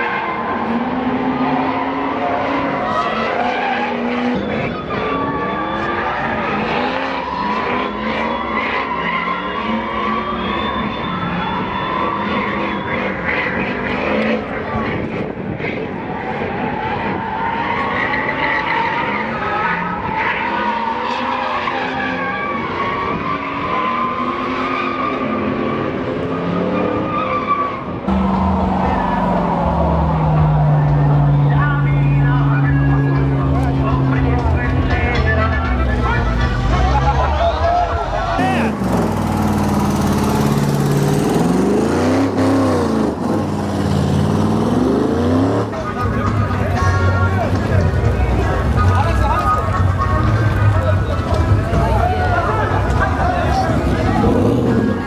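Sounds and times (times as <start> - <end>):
tires squealing: 0.0 - 55.0
truck engine revving: 28.1 - 55.0.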